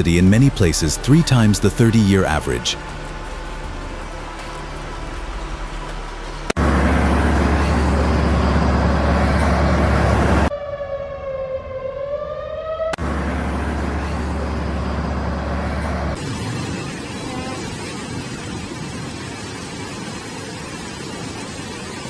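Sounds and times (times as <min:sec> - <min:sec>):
loud rushing noise with low rumble: 0:00.0 - 0:10.5, 0:13.0 - 0:22.0
siren wailing: 0:06.6 - 0:18.9.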